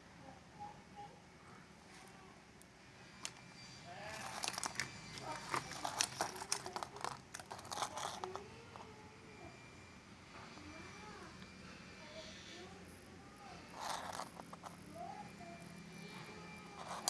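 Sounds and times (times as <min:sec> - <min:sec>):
sharp clicks and rattles: 0:04.2 - 0:08.4.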